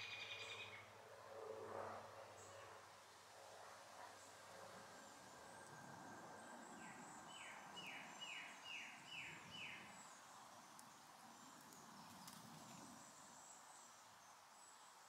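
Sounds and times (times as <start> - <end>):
songbird whistling: 0.0 - 0.7.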